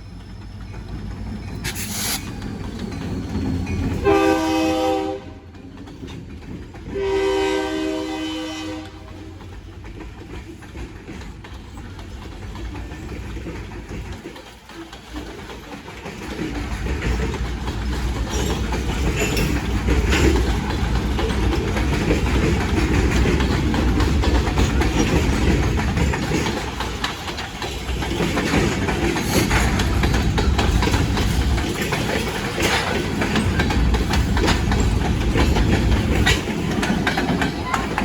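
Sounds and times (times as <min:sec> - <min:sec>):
train rumble: 0:00.0 - 0:38.0
train wheels clacking over rail joints: 0:00.0 - 0:38.0.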